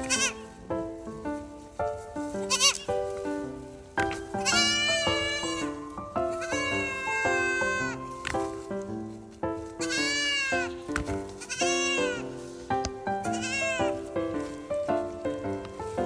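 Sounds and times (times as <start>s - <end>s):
goat kid bleating: 0.0s - 0.4s, 2.5s - 2.9s, 4.4s - 5.8s, 6.4s - 8.0s, 9.8s - 10.7s, 11.4s - 12.3s, 13.3s - 14.0s
background music: 0.0s - 16.0s.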